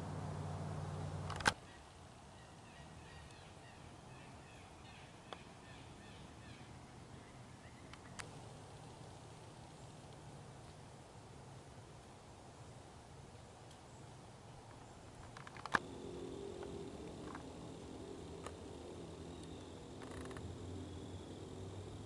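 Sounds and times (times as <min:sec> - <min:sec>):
small birds chirping: 0:00.0 - 0:10.8, 0:13.7 - 0:22.0
low steady hum: 0:00.0 - 0:22.0
sharp clicks: 0:15.2 - 0:15.8, 0:19.4 - 0:20.5.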